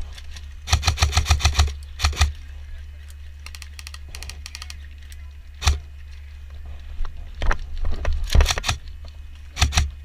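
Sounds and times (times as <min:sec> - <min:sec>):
distant airsoft gunshots: 0:00.7 - 0:02.3
sharp airsoft gunshots: 0:00.7 - 0:02.3, 0:08.4 - 0:08.8, 0:09.6 - 0:09.9.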